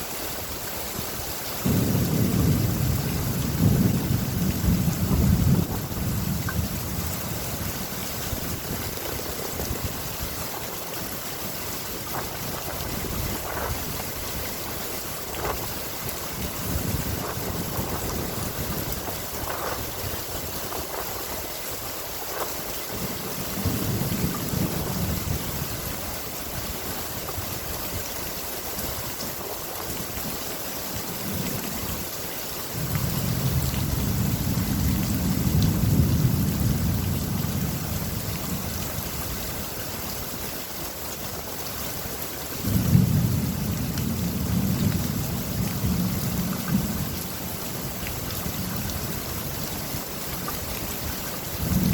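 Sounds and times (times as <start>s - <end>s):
rain hissing: 0.0s - 51.9s
rolling thunder: 1.6s - 7.5s, 12.1s - 21.0s, 22.9s - 25.8s, 32.8s - 38.6s, 42.6s - 47.1s.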